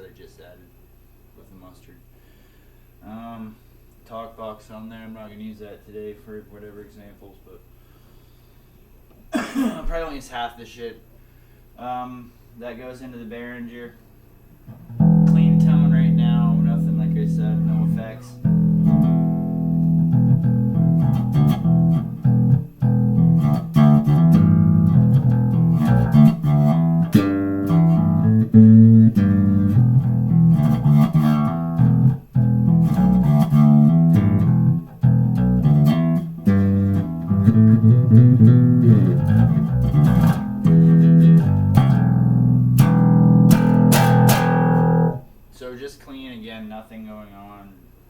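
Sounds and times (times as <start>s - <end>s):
electric bass guitar plucked: 14.7s - 45.3s.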